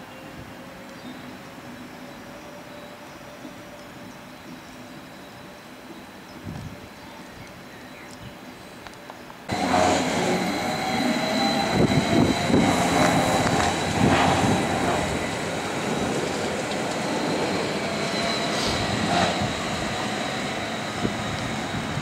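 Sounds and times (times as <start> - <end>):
thin high whine: 9.5 - 22.0
train running past: 9.5 - 22.0.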